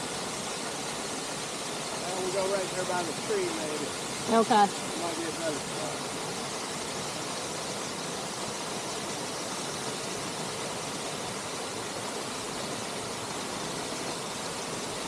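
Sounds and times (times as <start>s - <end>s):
waterfall splashing into river: 0.0s - 15.0s.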